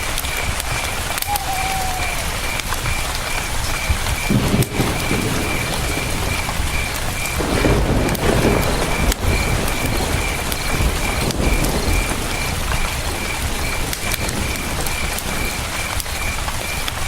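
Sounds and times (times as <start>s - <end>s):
river rushing: 0.0s - 4.3s
campfire crackling: 0.0s - 17.0s
cricket chirping: 0.2s - 17.0s.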